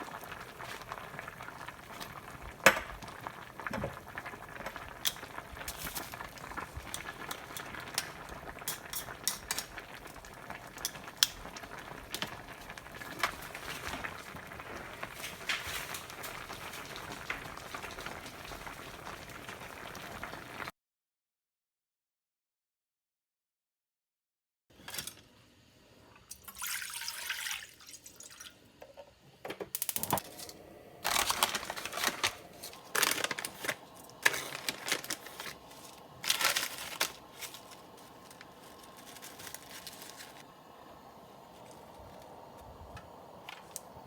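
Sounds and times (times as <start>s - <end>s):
stew bubbling at a boil: 0.0s - 20.7s, 30.2s - 44.0s
utensils clinking against pot: 6.8s - 10.0s.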